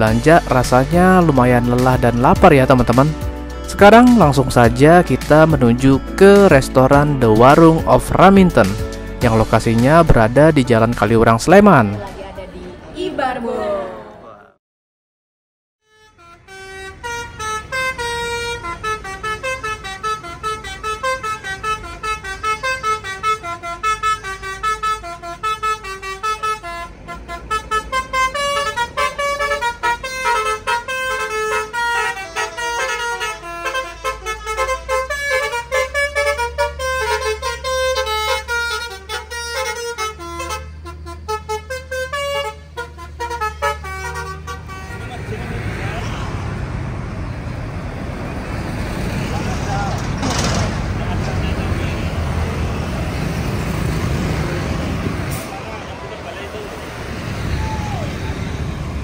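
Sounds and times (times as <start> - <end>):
musical bus horn tune: 0.0 - 11.2, 15.8 - 45.8, 51.3 - 55.6
bus engine running: 16.0 - 59.0.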